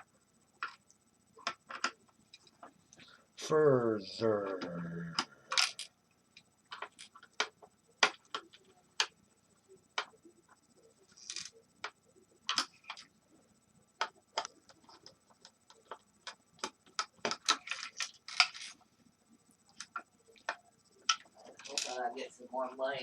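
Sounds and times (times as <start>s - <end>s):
tools and parts clicking: 5.5s - 5.9s.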